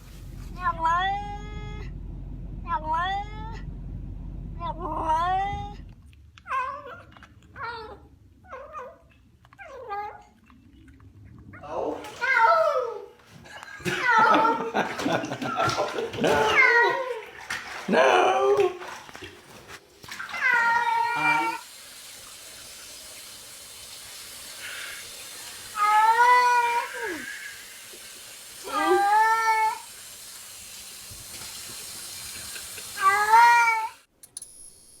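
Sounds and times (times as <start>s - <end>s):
cat meowing: 20.3s - 21.6s, 33.0s - 34.0s.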